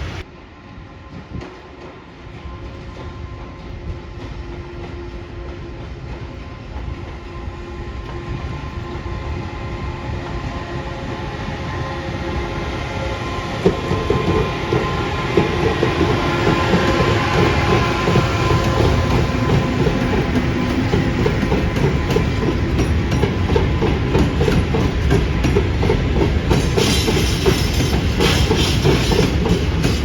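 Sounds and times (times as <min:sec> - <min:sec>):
train rumble: 0:00.0 - 0:30.0
wheels clacking over rail joints: 0:13.6 - 0:30.0.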